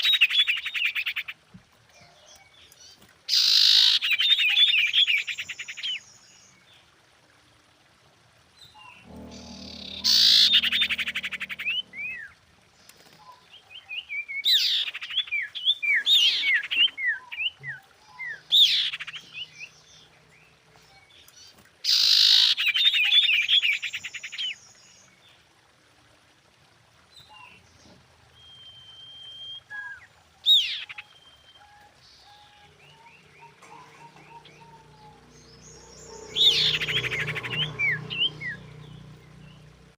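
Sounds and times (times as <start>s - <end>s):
bird trilled chirping: 9.0s - 12.3s
long steady bird whistle: 28.4s - 33.3s.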